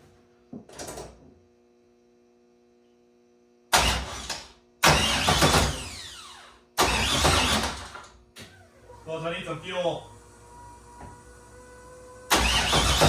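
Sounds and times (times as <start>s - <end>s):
starter motor whining down: 3.7s - 13.0s
engine cranking without starting: 4.8s - 7.9s, 12.3s - 13.0s.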